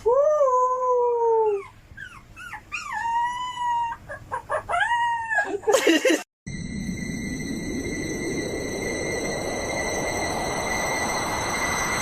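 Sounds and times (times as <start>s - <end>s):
dog howling: 2.8s - 5.6s.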